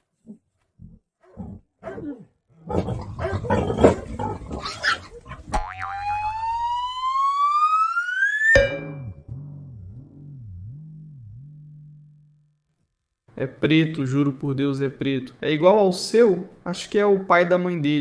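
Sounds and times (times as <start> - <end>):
animal growling and snarling: 0.2 - 5.5
rising whistle sound effect: 5.7 - 9.2.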